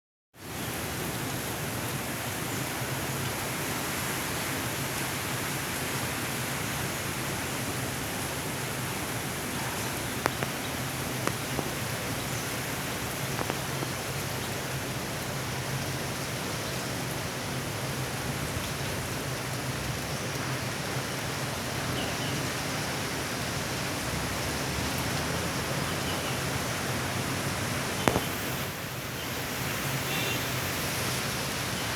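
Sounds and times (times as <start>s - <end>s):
heavy rain falling: 0.4s - 31.9s
drops tapping on something: 10.2s - 11.8s, 28.0s - 28.4s.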